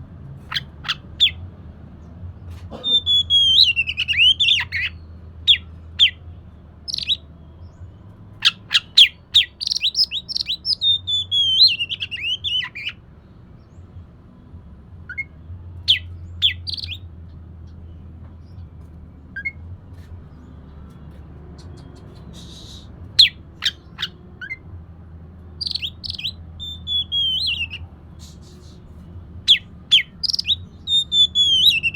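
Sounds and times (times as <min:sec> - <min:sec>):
bird singing whistled notes: 0:02.8 - 0:06.2, 0:06.9 - 0:13.0, 0:15.1 - 0:17.1, 0:21.6 - 0:24.6, 0:25.6 - 0:31.9.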